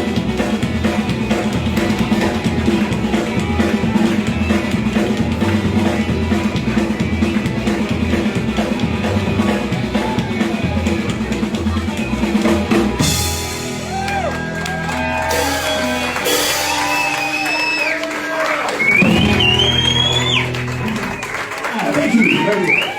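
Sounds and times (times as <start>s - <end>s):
rockabilly band playing: 0.0s - 22.9s
audience whooping: 13.5s - 22.9s
audience whistling: 13.7s - 22.9s.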